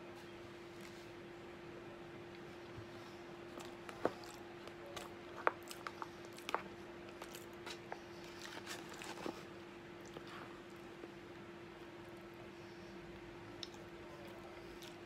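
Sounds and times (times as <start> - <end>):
steady low hum: 0.0 - 15.0
man chewing: 3.5 - 10.8.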